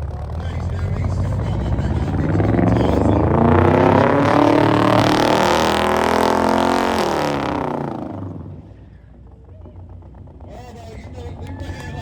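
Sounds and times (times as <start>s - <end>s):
car engine revving hard: 0.0s - 8.8s.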